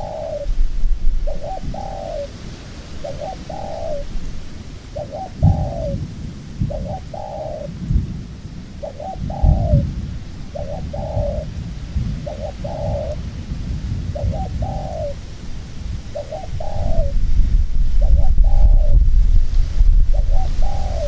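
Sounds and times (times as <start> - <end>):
dove cooing: 0.0 - 8.0, 8.7 - 13.4, 14.0 - 19.3, 20.1 - 21.0
low rumbling: 7.8 - 21.0.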